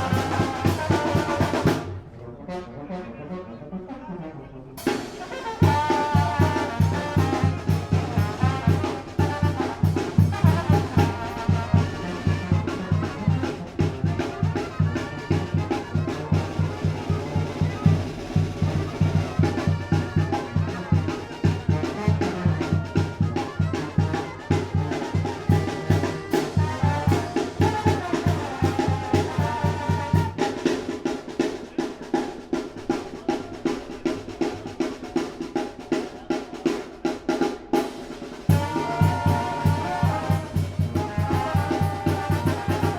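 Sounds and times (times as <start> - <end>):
bass drum and snare beat: 0.0 - 2.0, 4.8 - 31.5, 37.5 - 42.9
brass band playing: 0.0 - 42.9.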